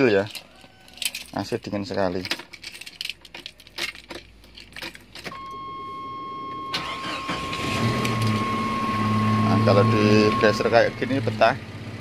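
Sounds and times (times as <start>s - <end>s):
keys jangling: 0.0s - 5.4s
engine cranking and idling: 4.6s - 12.0s
high electronic tone: 5.4s - 11.4s.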